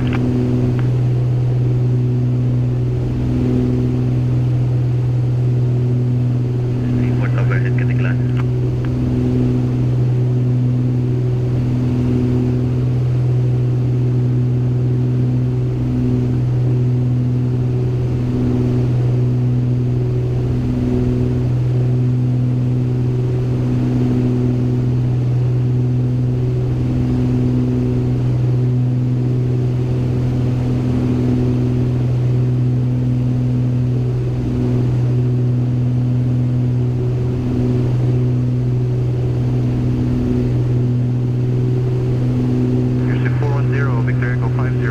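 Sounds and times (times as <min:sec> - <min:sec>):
propeller plane engines droning: 0:00.0 - 0:44.9
pulsing propeller beat tone: 0:00.0 - 0:44.9.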